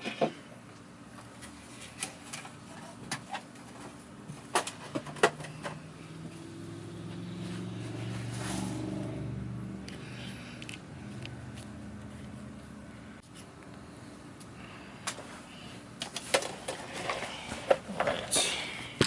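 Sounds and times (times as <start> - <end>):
low steady hum: 0.0 - 19.0
clicks and knocks of plastic parts: 1.4 - 5.8.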